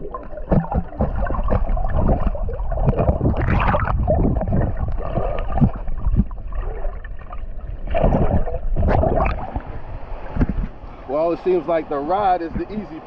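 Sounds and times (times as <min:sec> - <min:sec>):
water splashing and sloshing: 0:00.0 - 0:11.5
steady low rumble: 0:00.0 - 0:12.8.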